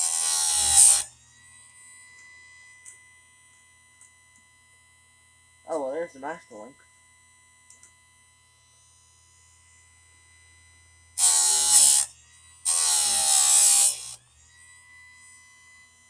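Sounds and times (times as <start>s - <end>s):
electric motor humming: 0.0s - 1.1s, 11.2s - 14.2s
grinding wheel grinding chain: 0.0s - 1.1s, 11.2s - 12.1s, 12.7s - 14.2s.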